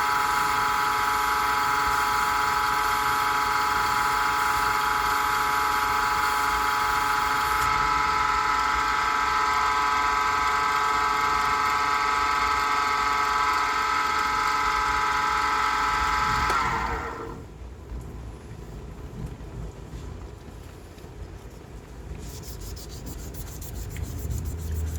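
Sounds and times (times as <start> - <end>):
lathe whining: 0.0 - 17.5.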